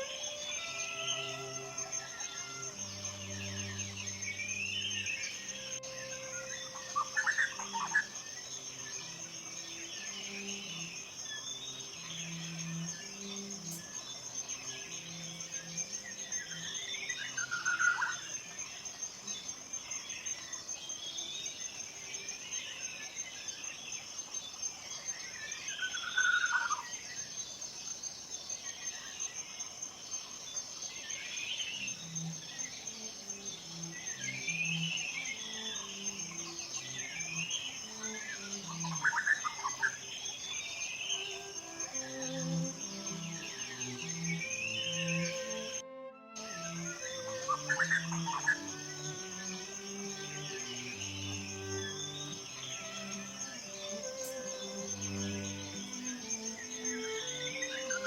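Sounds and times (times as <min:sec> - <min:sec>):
soft low music notes: 0:00.0 - 0:17.9, 0:41.2 - 0:58.0
high-pitched insect trill: 0:00.0 - 0:58.0
songbirds calling: 0:00.0 - 0:58.0.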